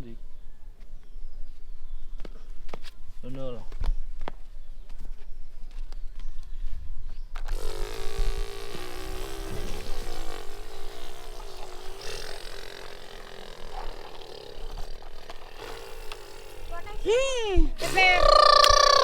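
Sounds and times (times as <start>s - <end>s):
droning motor tone: 7.5s - 17.2s.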